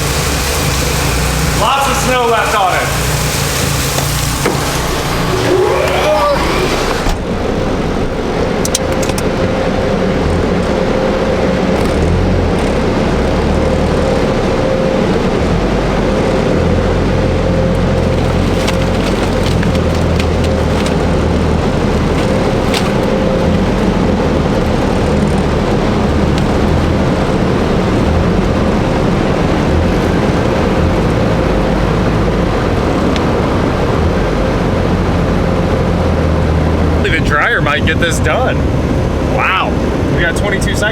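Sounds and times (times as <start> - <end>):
air dryer blowers rushing: 0.0 - 9.3.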